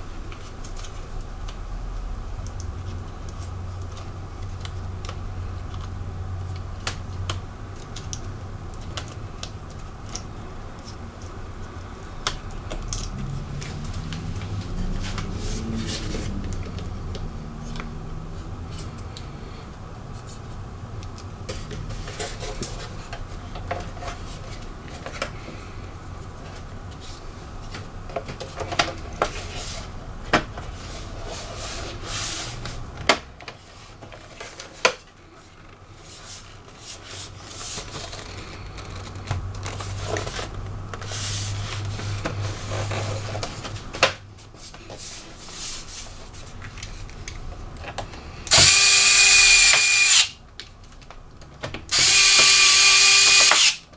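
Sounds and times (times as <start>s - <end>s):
electric screwdriver running: 48.5s - 50.4s, 51.9s - 53.8s.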